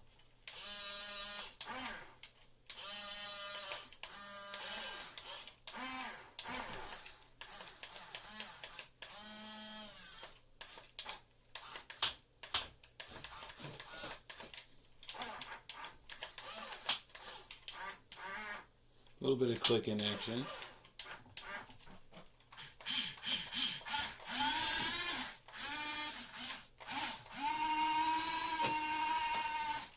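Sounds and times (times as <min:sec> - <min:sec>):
small electric motors whining: 0:02.8 - 0:10.3, 0:22.6 - 0:29.9
sharp clicks and knocks: 0:10.3 - 0:17.8.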